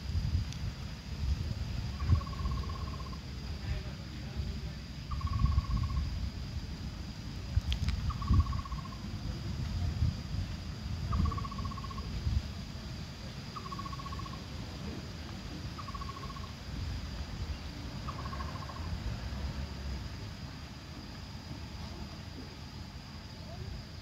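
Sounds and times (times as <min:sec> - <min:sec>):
bird trilling call: 0:01.9 - 0:03.2, 0:05.1 - 0:06.0, 0:08.0 - 0:09.1, 0:11.1 - 0:12.0, 0:13.6 - 0:14.4, 0:15.8 - 0:16.5, 0:18.0 - 0:18.9.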